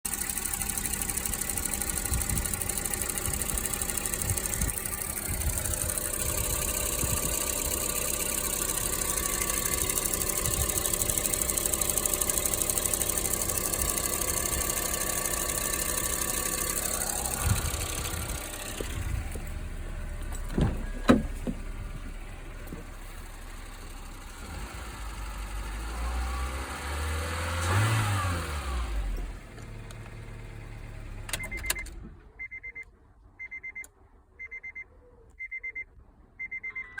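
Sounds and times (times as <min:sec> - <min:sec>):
car engine idling: 0:00.1 - 0:31.9
low tone rising and falling: 0:16.1 - 0:19.4.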